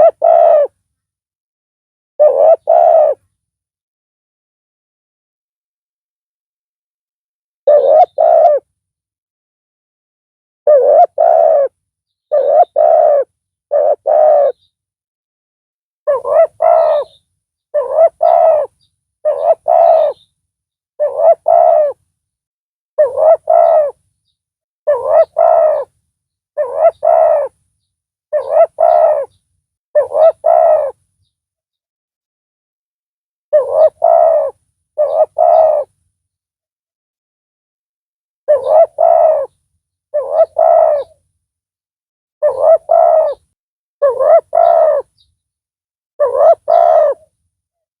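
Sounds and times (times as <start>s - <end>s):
dove cooing: 0.0s - 0.8s, 2.2s - 3.3s, 7.7s - 8.7s, 10.7s - 14.7s, 16.1s - 17.2s, 17.8s - 20.3s, 21.0s - 22.0s, 23.0s - 24.0s, 24.9s - 26.0s, 26.6s - 27.6s, 28.3s - 29.4s, 30.0s - 31.0s, 33.5s - 36.0s, 38.5s - 41.2s, 42.4s - 45.3s, 46.2s - 47.3s.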